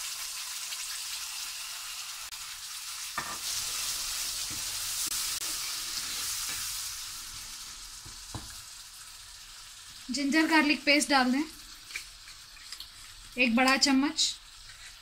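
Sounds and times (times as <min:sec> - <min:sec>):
paste sizzling in hot oil: 0:00.0 - 0:15.0
ladle scraping a pan: 0:14.6 - 0:15.0.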